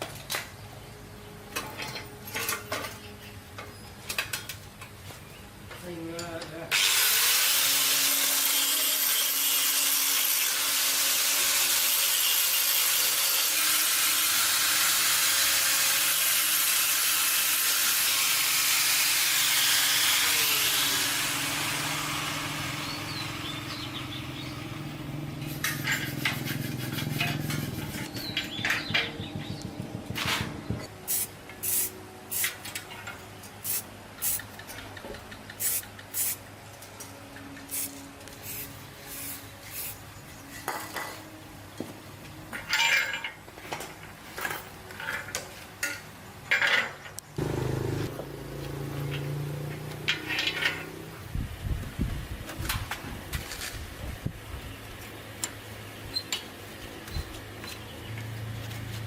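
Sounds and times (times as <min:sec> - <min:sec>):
power tool rushing hiss: 0:06.7 - 0:23.6, 0:31.1 - 0:32.6.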